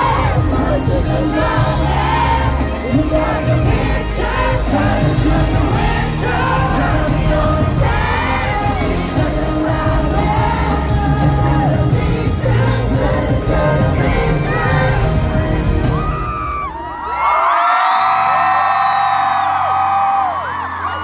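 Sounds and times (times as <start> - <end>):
pop singing over heavy bass: 0.0 - 16.8
crowd yelling: 0.0 - 21.0.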